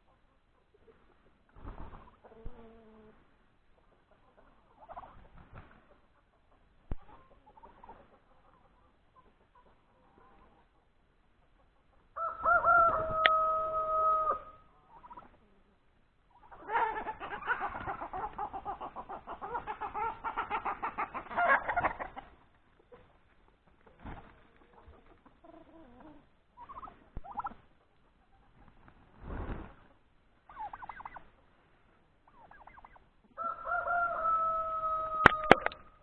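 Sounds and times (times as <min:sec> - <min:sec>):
rooster crowing: 0:12.2 - 0:14.6, 0:33.4 - 0:35.8
rapid repeated fowl calls: 0:16.3 - 0:23.2, 0:23.8 - 0:28.7, 0:29.5 - 0:31.4, 0:32.2 - 0:36.0.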